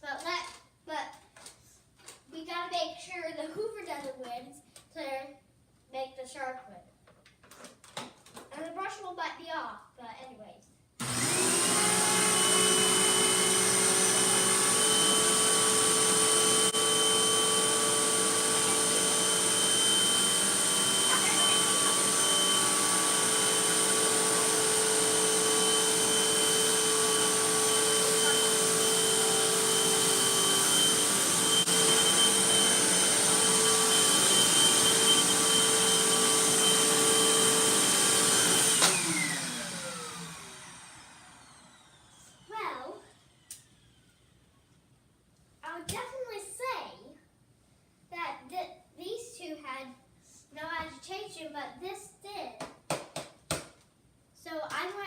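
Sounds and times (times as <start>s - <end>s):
vacuum cleaner whining: 11.0s - 44.4s.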